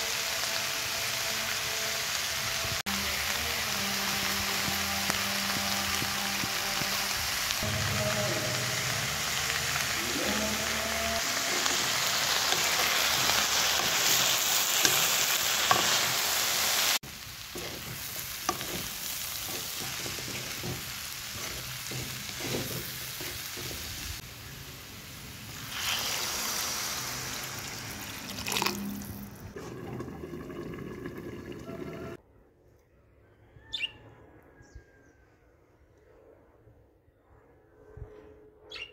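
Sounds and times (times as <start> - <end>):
vegetables sizzling in a wok: 0.0 - 29.6
wooden spatula scraping and knocking: 17.5 - 24.2.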